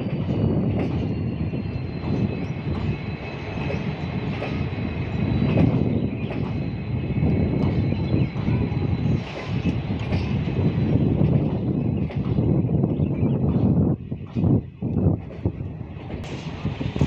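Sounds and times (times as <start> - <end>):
high wheel squeal: 0.0 - 12.0
train wheels rumbling on rails: 0.0 - 17.0.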